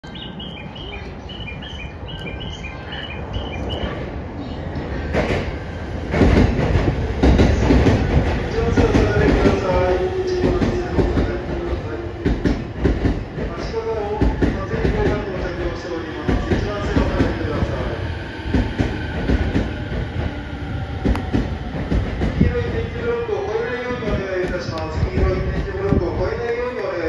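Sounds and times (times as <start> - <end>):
train low rumble: 0.0 - 27.0.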